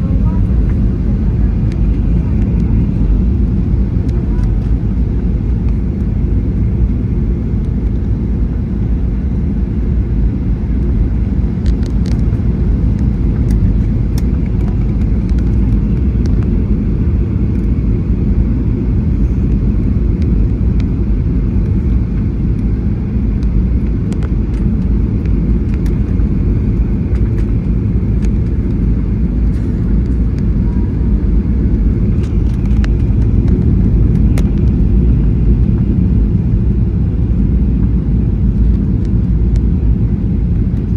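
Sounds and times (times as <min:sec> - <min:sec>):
airliner cabin engine rumble: 0:00.0 - 0:40.9
faint clicks and rattles: 0:23.4 - 0:34.9.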